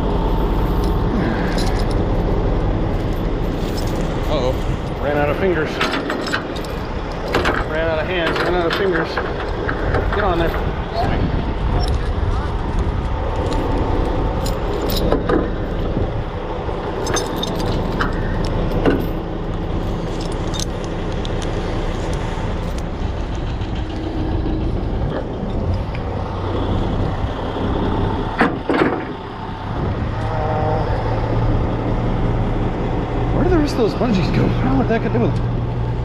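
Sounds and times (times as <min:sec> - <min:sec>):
diesel engine idling: 0:00.0 - 0:36.0
metal hooks clinking: 0:00.4 - 0:02.1, 0:03.0 - 0:10.6, 0:13.4 - 0:15.8, 0:16.9 - 0:21.6.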